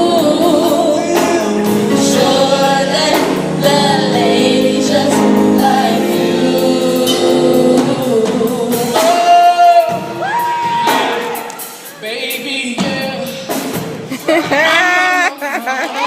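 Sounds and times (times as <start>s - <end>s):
vocal group singing harmony: 0.0s - 11.8s
lead voice singing: 0.0s - 15.3s.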